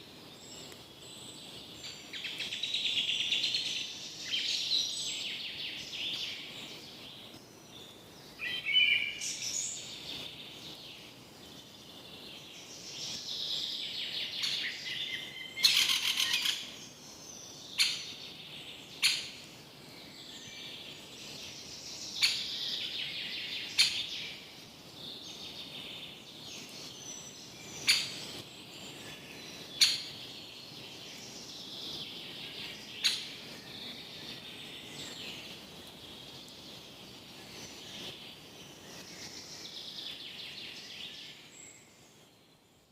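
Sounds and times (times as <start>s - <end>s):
birds singing and chirping: 0.2s - 42.2s.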